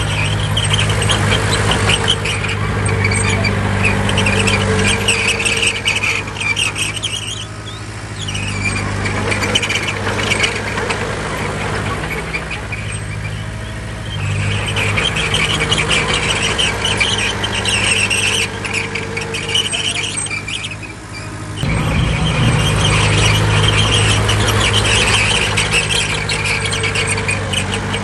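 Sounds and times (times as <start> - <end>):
diesel engine running: 0.0 - 28.0
tracks squealing: 0.0 - 28.0
light clatter: 14.2 - 28.0.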